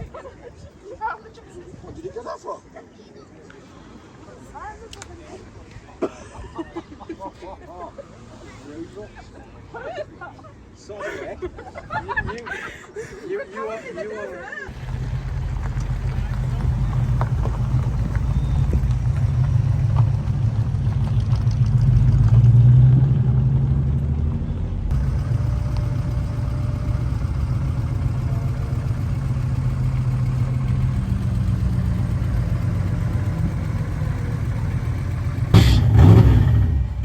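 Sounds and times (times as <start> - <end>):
car engine idling: 14.7 - 22.7, 23.9 - 37.0.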